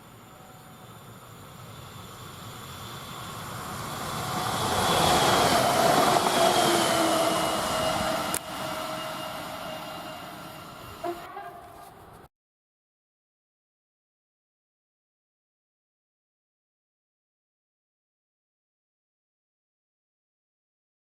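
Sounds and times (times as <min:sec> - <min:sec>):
electric train passing: 0:00.0 - 0:12.3.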